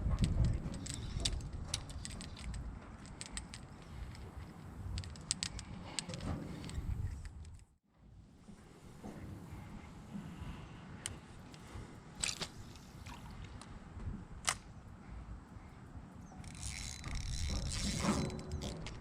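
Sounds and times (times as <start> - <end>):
fishing tackle clicks: 0.2 - 7.7, 12.2 - 13.7, 16.4 - 19.0.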